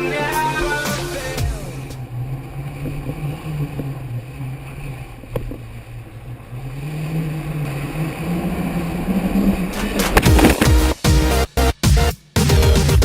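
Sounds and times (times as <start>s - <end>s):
motor running with low drone: 1.5s - 9.4s.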